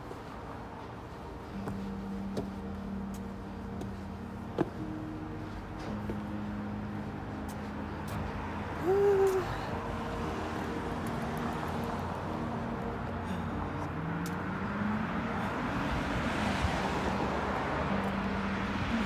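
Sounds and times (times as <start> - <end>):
passing vehicles hiss: 4.2 - 19.0.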